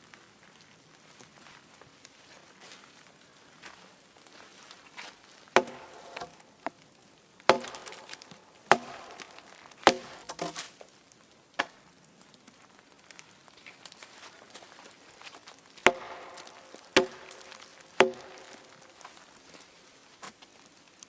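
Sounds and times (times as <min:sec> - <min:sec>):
axe chopping wood: 0:05.5 - 0:06.4, 0:07.4 - 0:10.8, 0:11.6 - 0:11.8, 0:15.8 - 0:18.8.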